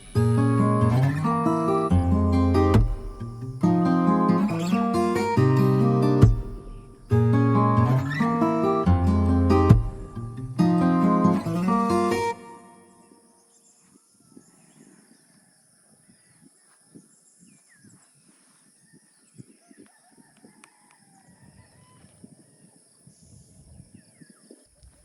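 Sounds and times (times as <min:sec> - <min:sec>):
faint bird chirps: 0:12.8 - 0:25.0.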